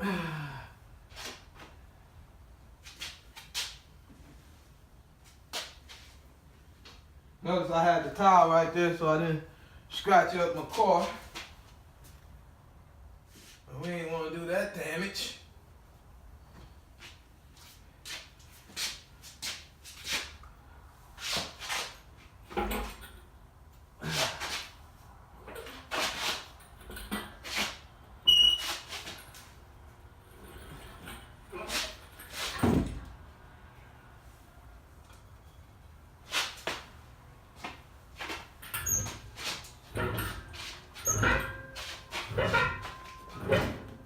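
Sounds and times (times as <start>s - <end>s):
heavy clunk: 32.5s - 33.1s, 39.9s - 44.0s
metal scrapes and clatters: 38.6s - 44.0s.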